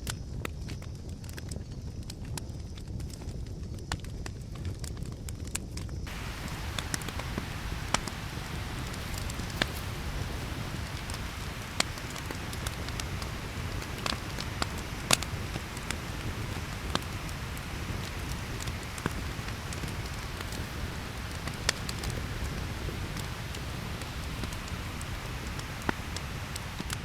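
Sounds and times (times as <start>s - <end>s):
campfire crackling and popping: 6.1s - 27.0s.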